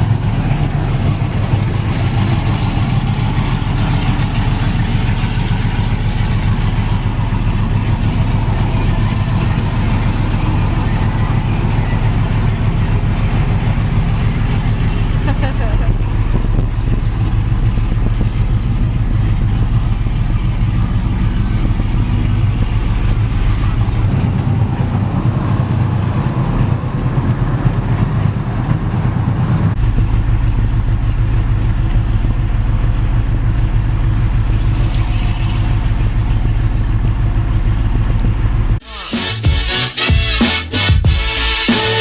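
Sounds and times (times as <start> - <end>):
truck engine droning: 0.0 - 42.0.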